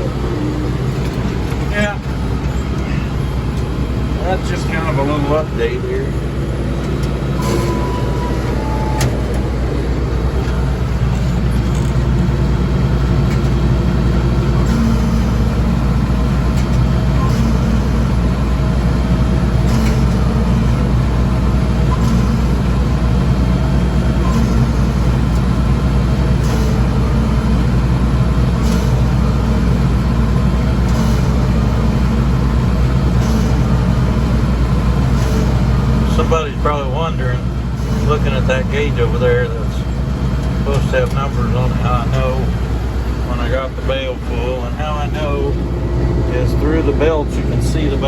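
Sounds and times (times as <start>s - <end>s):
tractor diesel engine under load: 0.0s - 48.0s.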